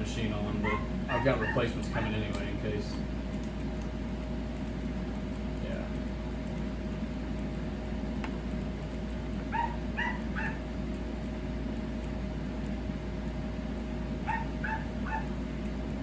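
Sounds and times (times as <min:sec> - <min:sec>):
steady low hum: 0:00.0 - 0:16.0
small dog yipping: 0:00.6 - 0:02.1, 0:09.5 - 0:10.6, 0:14.3 - 0:15.4.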